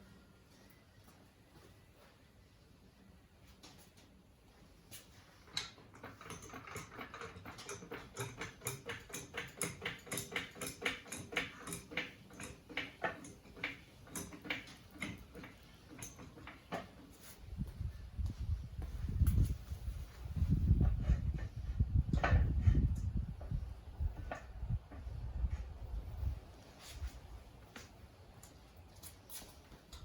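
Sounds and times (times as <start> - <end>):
trolley jack clicking: 5.5 - 17.0.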